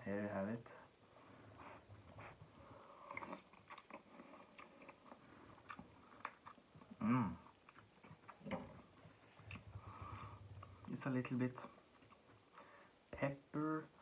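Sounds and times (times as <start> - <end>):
person chewing noodles: 1.6 - 10.9, 11.6 - 12.7.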